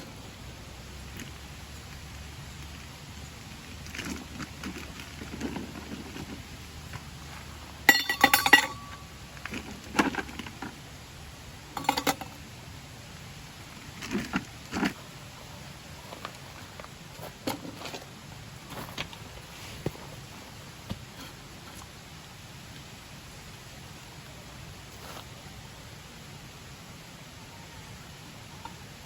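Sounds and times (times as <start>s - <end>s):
metal camp gear clinking: 7.8s - 10.7s, 11.7s - 12.4s.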